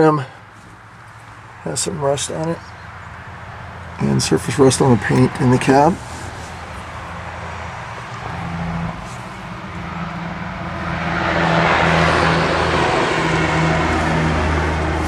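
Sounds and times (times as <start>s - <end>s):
vehicle engine humming: 0.0s - 15.0s
rushing noise: 6.0s - 15.0s.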